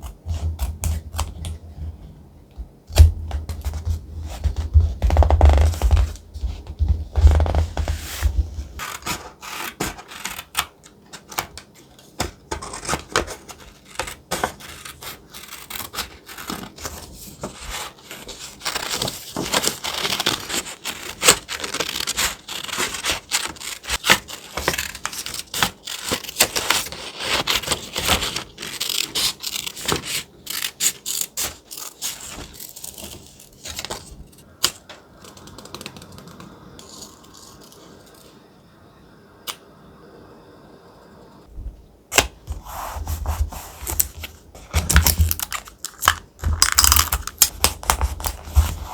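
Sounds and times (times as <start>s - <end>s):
paper rubbed and crinkling: 3.6s - 10.4s, 12.6s - 34.5s, 42.5s - 48.9s.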